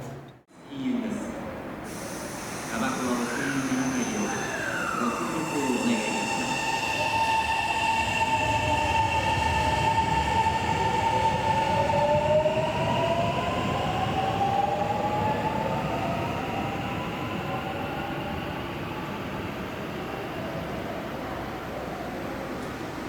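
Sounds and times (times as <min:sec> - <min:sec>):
electric train whine: 0:01.9 - 0:21.3.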